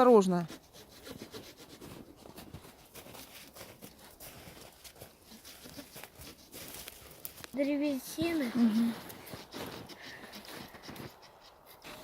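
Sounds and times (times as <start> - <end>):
hand saw cutting branch: 0.4 - 12.0.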